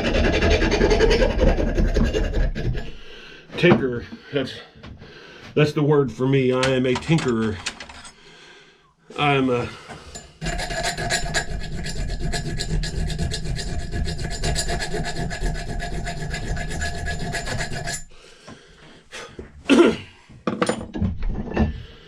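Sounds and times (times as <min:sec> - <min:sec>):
file rasping on axe head: 0:00.0 - 0:03.0, 0:10.1 - 0:18.1
tool and metal knocks: 0:20.4 - 0:21.7.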